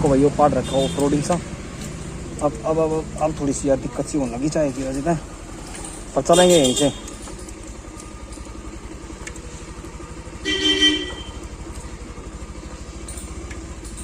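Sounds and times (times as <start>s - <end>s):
motorcycle engine running: 0.0s - 14.0s
motorcycle horn: 0.5s - 1.4s, 6.2s - 7.3s, 10.2s - 11.6s.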